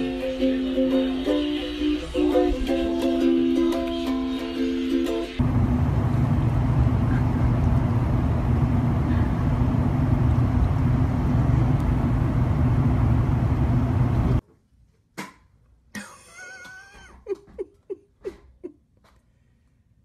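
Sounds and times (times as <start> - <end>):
faint hum: 5.4 - 14.4
vehicle engine rumble: 5.4 - 14.4.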